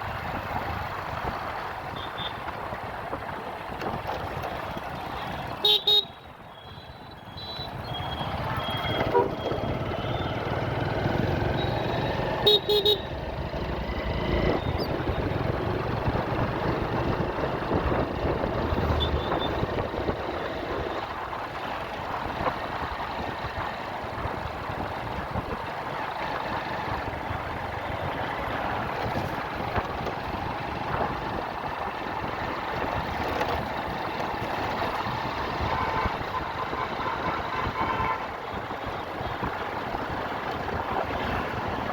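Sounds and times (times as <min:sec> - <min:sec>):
road traffic rush: 0:00.0 - 0:41.9
vehicle horn honks: 0:05.6 - 0:07.7, 0:08.6 - 0:09.5, 0:12.4 - 0:13.1, 0:35.7 - 0:38.3.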